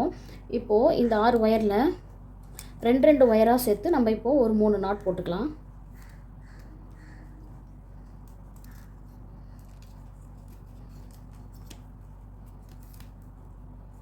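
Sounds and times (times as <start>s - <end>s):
steady low hum: 0.0s - 14.0s
plastic wire rustling and clicking: 7.6s - 13.5s.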